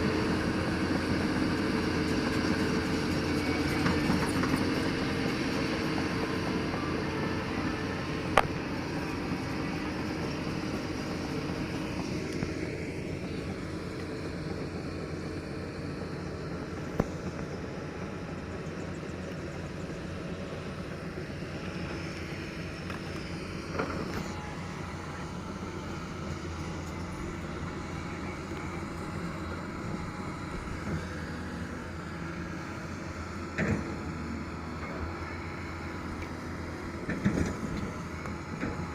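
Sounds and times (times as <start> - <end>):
excavator running: 0.0 - 38.9.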